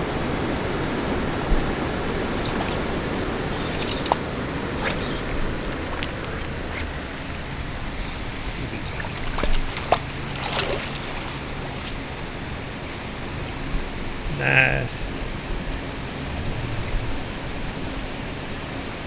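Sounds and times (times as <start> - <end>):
water rushing: 2.2 - 12.1
short splashes or knocks: 2.3 - 12.0.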